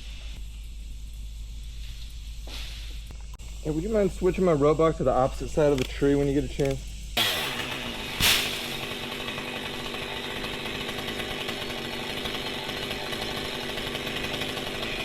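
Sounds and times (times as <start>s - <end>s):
chainsaw running: 3.6s - 15.0s.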